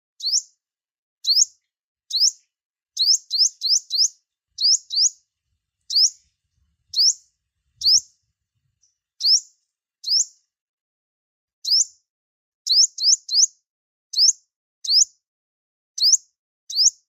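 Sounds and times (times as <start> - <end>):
songbird whistled chirps: 0.2 - 0.6, 1.2 - 2.4, 3.0 - 5.3, 5.9 - 6.3, 6.9 - 8.2, 8.8 - 10.4, 11.6 - 12.0, 12.7 - 15.2, 16.0 - 17.0.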